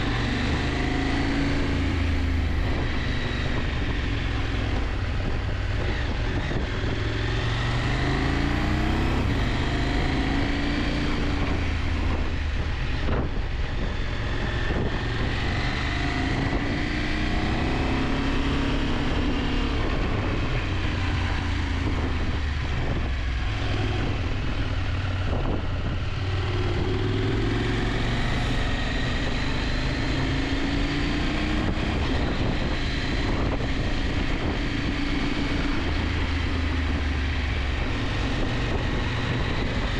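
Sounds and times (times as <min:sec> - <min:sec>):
motorcycle engine revving: 0:00.0 - 0:39.9
wind rushing: 0:21.8 - 0:36.4.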